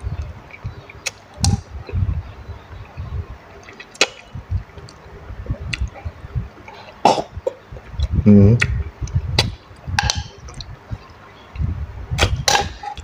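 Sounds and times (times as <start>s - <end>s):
mouth clicks: 0.1s - 2.0s, 2.9s - 13.0s
person chewing and lip-smacking: 3.6s - 6.0s, 8.0s - 10.8s.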